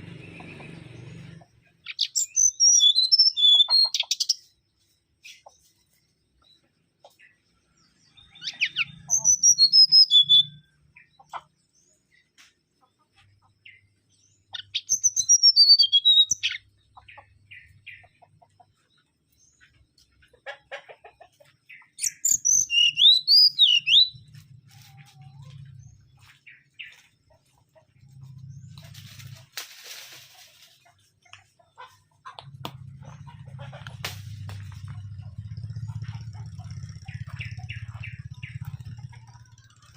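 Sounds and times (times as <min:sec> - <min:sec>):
bird singing whistled phrases: 0:02.0 - 0:04.3, 0:08.4 - 0:10.6, 0:14.6 - 0:16.6, 0:22.0 - 0:24.1.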